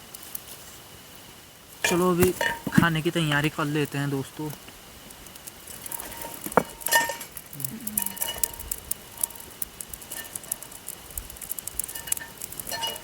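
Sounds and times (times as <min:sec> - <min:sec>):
metal pots and utensils clinking: 0:05.9 - 0:07.4, 0:12.0 - 0:13.0.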